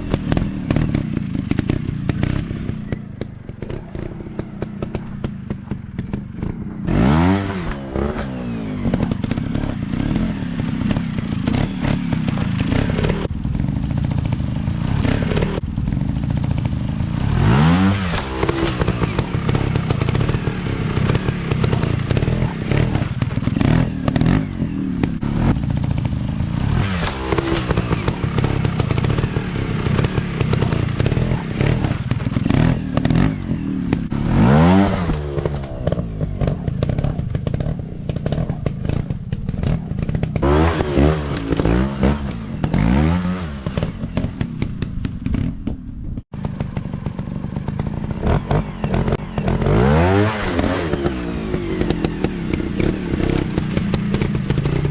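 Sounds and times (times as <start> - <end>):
dirt bike engines revving: 0.0 - 54.9
knocks and clattering: 0.1 - 13.3.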